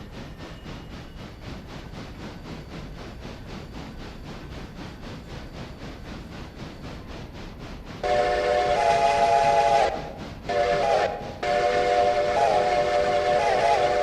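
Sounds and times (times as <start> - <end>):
train rhythmic beat: 0.0 - 14.0
train whistle blasts: 8.0 - 14.0.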